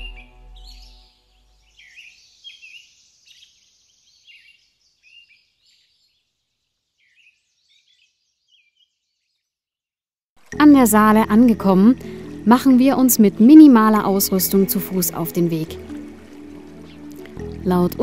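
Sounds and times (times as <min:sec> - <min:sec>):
songbirds chirping and singing: 0:00.0 - 0:06.2, 0:07.0 - 0:09.5, 0:13.3 - 0:18.0.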